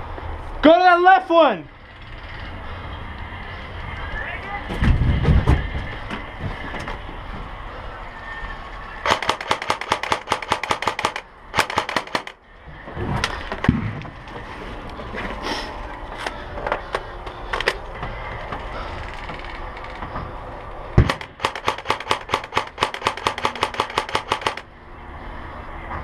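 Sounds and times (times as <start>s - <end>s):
airsoft single shots: 21.0s - 24.6s
airsoft gun bursts: 21.1s - 24.6s.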